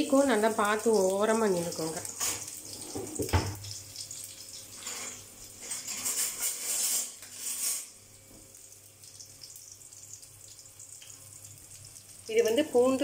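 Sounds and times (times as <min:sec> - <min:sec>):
garlic and chillies sizzling in oil: 0:00.0 - 0:13.0
utensil knock: 0:02.9 - 0:03.6.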